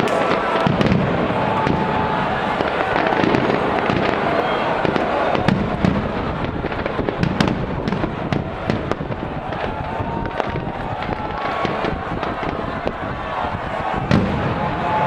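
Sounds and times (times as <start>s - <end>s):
sharp firework cracks: 0.0s - 14.6s
fireworks crackling bursts: 0.0s - 15.0s.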